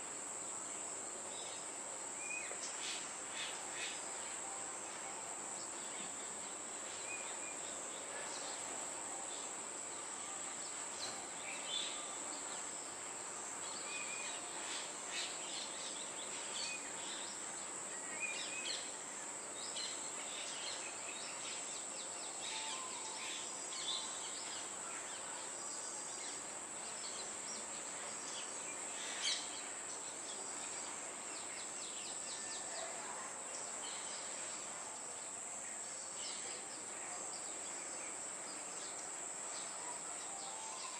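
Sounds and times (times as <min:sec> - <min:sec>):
insects droning: 0:00.0 - 0:40.9
faint bird chirps: 0:35.9 - 0:40.9.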